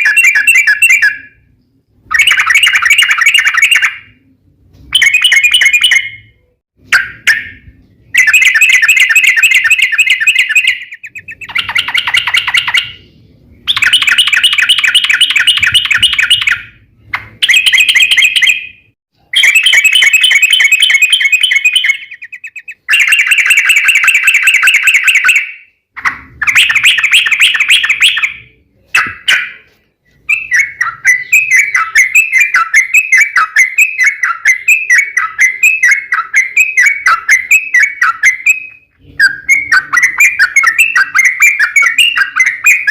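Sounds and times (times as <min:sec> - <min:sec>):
bird repeated chirps: 0:00.0 - 0:42.9
bird chattering calls: 0:08.2 - 0:13.1.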